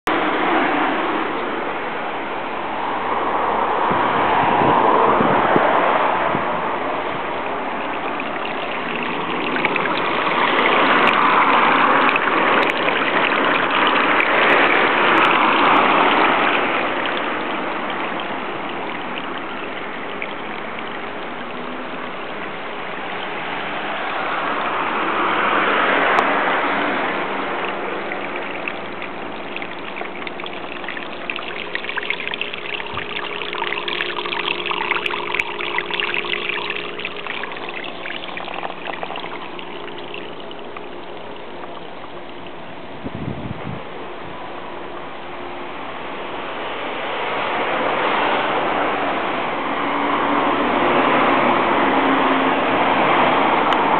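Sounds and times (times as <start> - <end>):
water splashing from a hole: 5.7 - 42.8.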